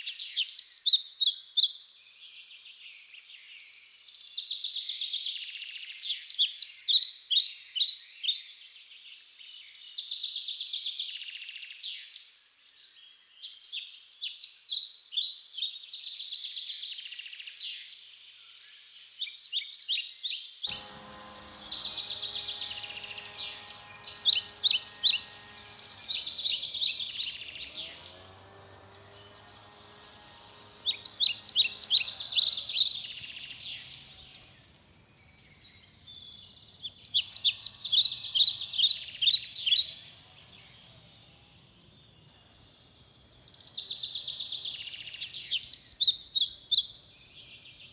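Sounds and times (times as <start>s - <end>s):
faint low hum: 20.7s - 35.4s.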